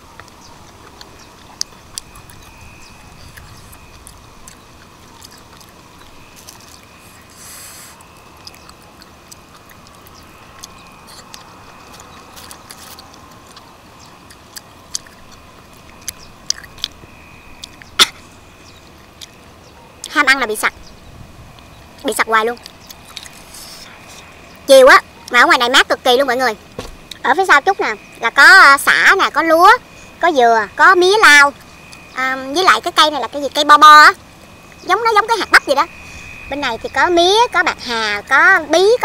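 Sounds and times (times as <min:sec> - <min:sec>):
person chewing clams: 0:00.2 - 0:19.6, 0:21.8 - 0:24.4.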